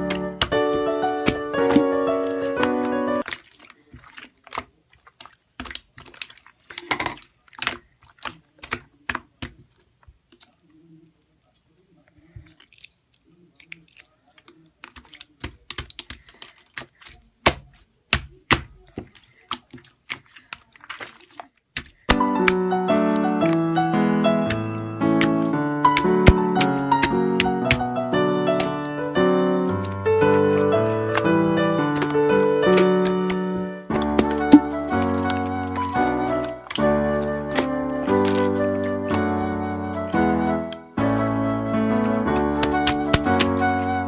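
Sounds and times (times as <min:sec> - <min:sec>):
background music: 0:00.0 - 0:03.2, 0:22.2 - 0:44.0.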